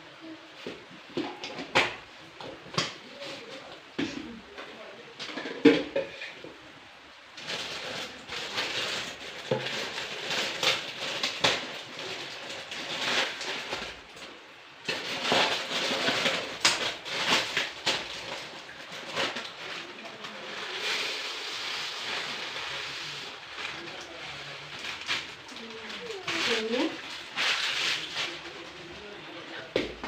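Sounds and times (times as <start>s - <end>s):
kitchen containers clattering: 5.2s - 6.5s.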